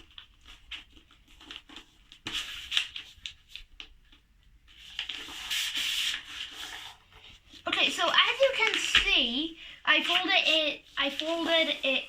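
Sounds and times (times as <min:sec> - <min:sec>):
paper rustling and crinkling: 0:00.0 - 0:12.0.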